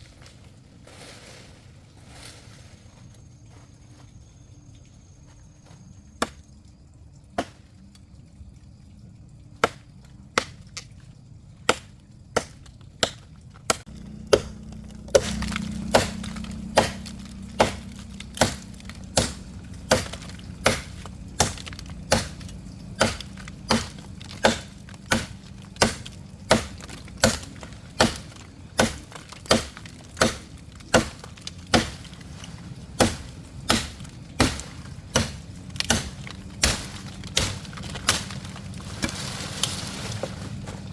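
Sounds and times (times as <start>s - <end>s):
low steady hum: 0.0s - 40.9s
chopping wood: 6.2s - 6.4s, 7.4s - 7.7s, 9.6s - 10.9s, 11.7s - 40.9s.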